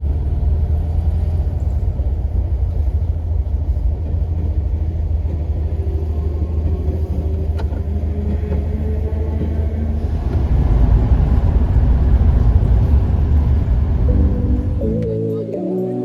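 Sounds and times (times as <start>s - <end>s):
car engine low rumble: 0.0s - 15.2s
faint engine tone: 10.0s - 15.2s.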